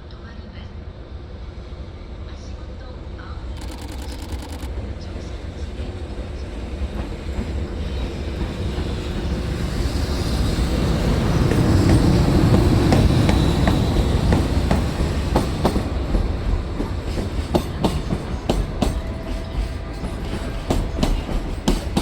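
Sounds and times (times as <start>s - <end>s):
freight train rumble: 0.0s - 22.0s.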